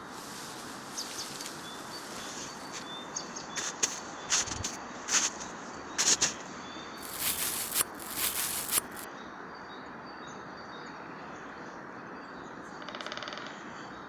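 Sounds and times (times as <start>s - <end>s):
footsteps rustling through leaves: 0.0s - 6.4s, 7.0s - 9.1s
bird chirps: 6.9s - 9.1s.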